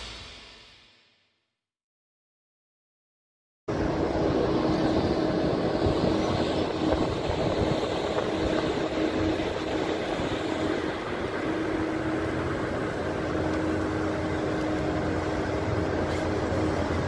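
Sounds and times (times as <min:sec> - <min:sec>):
slow train running noise: 0:03.7 - 0:17.0.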